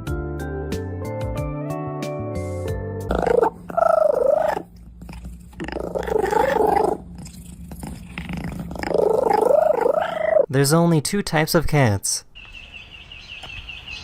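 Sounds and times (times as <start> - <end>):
cat calling: 3.1 - 4.8, 5.6 - 7.1, 8.8 - 10.5.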